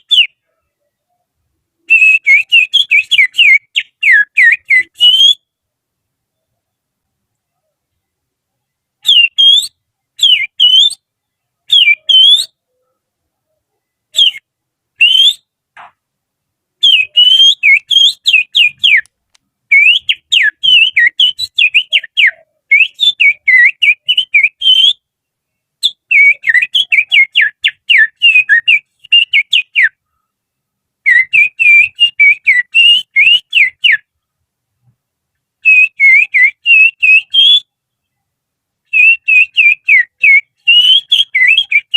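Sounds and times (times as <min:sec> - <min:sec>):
finger whistling bird song: 0:00.0 - 0:00.6, 0:01.8 - 0:05.5, 0:09.0 - 0:11.0, 0:11.7 - 0:12.6, 0:14.1 - 0:14.4, 0:15.0 - 0:15.5, 0:16.8 - 0:19.1, 0:19.7 - 0:25.1, 0:25.8 - 0:30.0, 0:31.1 - 0:34.1, 0:35.6 - 0:37.7, 0:38.9 - 0:41.9.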